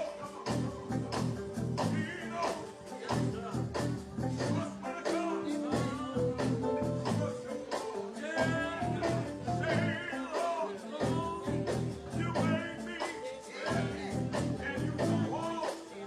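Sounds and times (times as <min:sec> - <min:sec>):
steady drumbeat: 0:00.0 - 0:15.9
gospel church band playing: 0:00.0 - 0:16.0.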